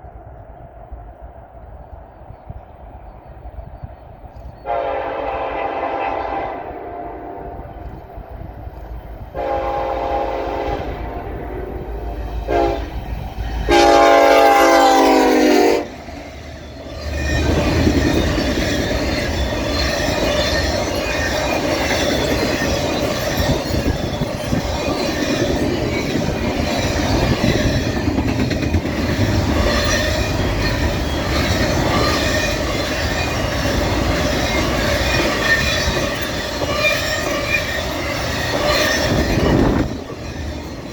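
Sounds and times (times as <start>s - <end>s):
train rumbling past: 0.0s - 40.9s
train horn blasts: 4.6s - 8.0s, 9.3s - 16.0s
wheels clacking over rail joints: 15.9s - 40.9s.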